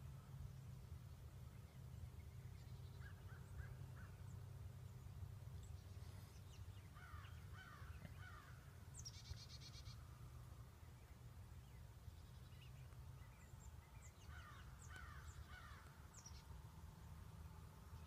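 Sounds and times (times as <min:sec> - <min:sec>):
low steady rumble: 0:00.0 - 0:18.0
bird calls: 0:12.2 - 0:16.5.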